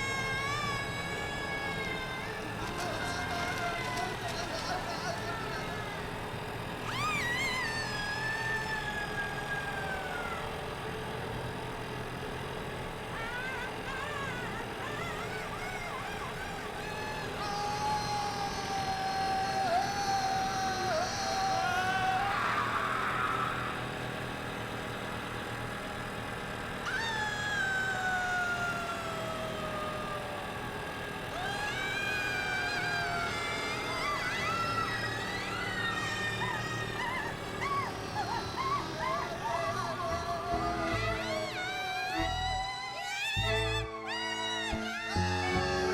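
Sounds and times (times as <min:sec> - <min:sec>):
high-pitched wail: 0:00.0 - 0:10.8, 0:13.1 - 0:24.0, 0:26.8 - 0:45.9
pitched tone gliding downward: 0:35.9 - 0:45.9.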